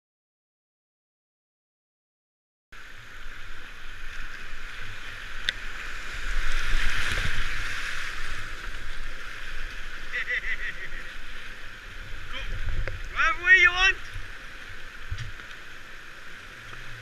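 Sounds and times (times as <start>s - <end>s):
river water rushing and splashing: 2.8s - 17.0s
wind rumble on microphone: 2.9s - 10.2s, 10.8s - 17.0s.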